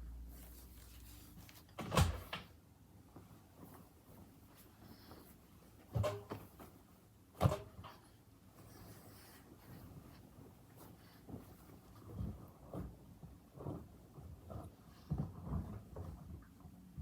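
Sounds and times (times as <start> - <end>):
faint handling noise: 0.0 - 16.9.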